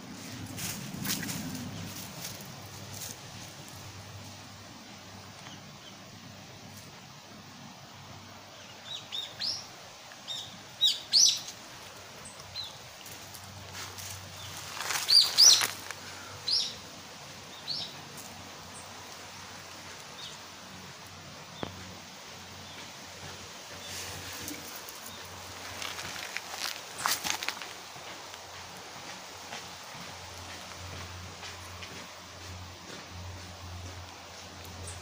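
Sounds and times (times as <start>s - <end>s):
birds chirping: 8.4s - 35.0s.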